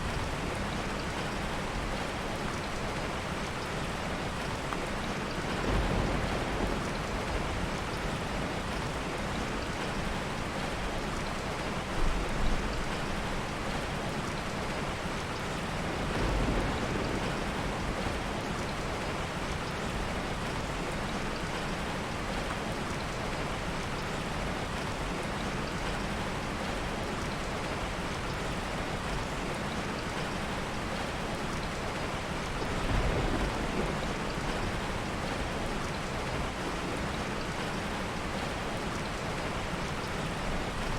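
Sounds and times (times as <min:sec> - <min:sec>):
heavy rain: 0:00.0 - 0:40.9
soft low thunder: 0:05.4 - 0:08.8, 0:16.0 - 0:19.2, 0:32.5 - 0:38.2.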